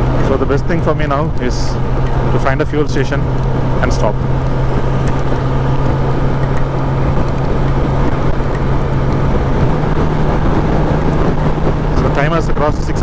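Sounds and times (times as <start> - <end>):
motorcycle engine cruising: 0.0 - 13.0
wind rushing: 3.2 - 13.0.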